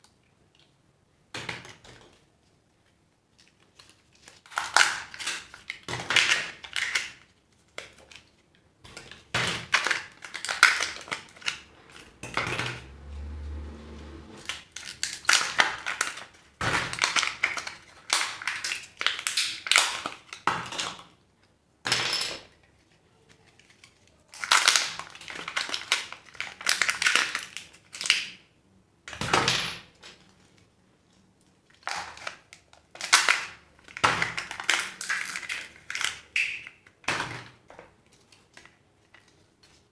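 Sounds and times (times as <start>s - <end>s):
wrappers crinkling and tearing: 2.8s - 12.2s, 14.4s - 20.5s, 23.3s - 28.3s, 31.6s - 36.5s.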